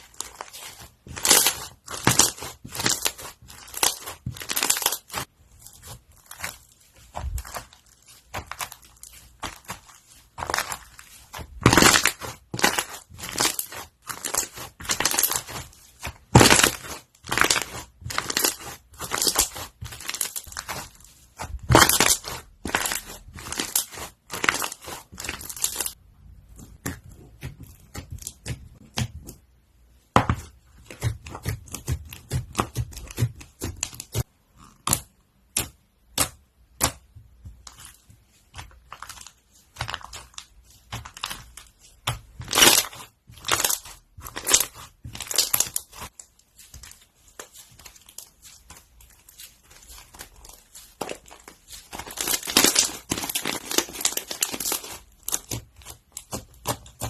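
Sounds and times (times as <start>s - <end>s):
crunchy slime crackling and popping: 0.0s - 26.0s, 37.6s - 57.0s.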